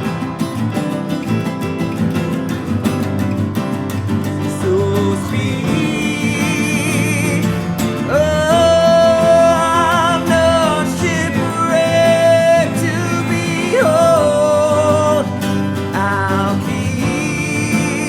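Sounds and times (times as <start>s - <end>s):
country band playing: 0.0s - 18.0s.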